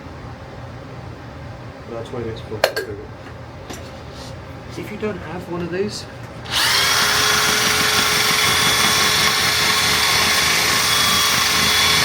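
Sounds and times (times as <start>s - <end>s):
electric motor whining: 6.4s - 12.0s.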